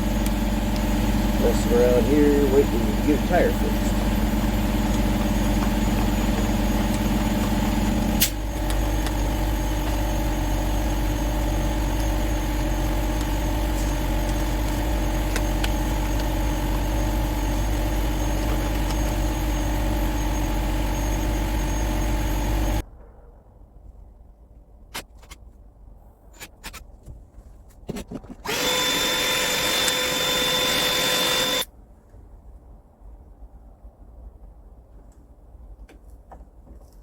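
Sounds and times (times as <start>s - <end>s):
truck engine idling: 0.0s - 22.8s
click: 11.9s - 19.4s, 29.6s - 30.1s.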